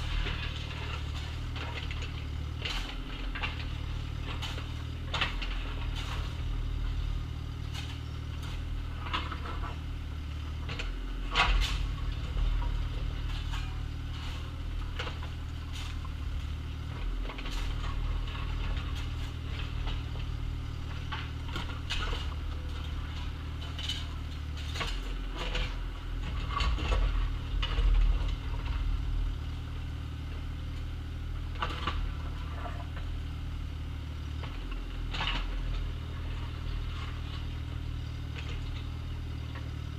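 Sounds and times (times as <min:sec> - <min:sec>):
bucket clanking and scraping gravel: 0:00.0 - 0:10.0, 0:10.6 - 0:29.5, 0:31.4 - 0:33.1
excavator engine running: 0:00.0 - 0:39.9.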